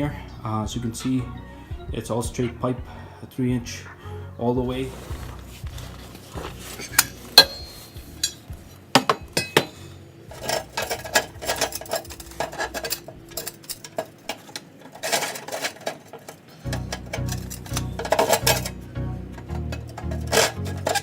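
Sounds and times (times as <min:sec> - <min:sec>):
metal rattling clatter: 0:04.9 - 0:21.0
metal parts clanking: 0:05.2 - 0:21.0.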